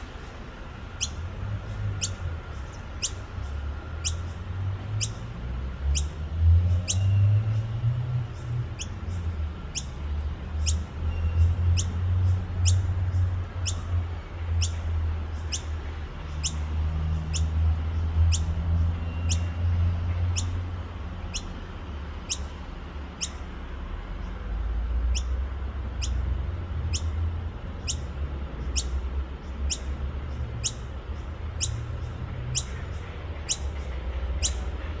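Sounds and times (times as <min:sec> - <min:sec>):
bird calling high downward notes: 0:26.0 - 0:33.7.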